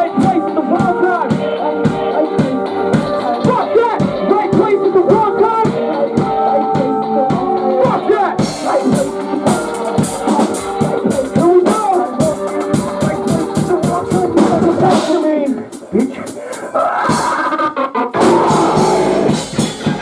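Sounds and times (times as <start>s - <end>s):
rock band playing live: 0.0s - 16.6s, 18.2s - 20.0s
cymbals crashing: 18.2s - 19.9s.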